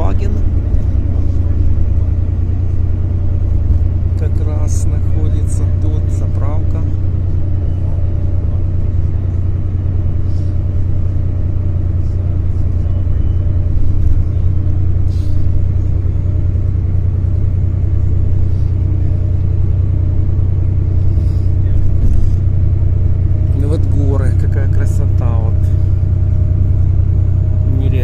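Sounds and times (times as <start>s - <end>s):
coach engine drone: 0.0s - 28.0s
road noise: 0.0s - 28.0s.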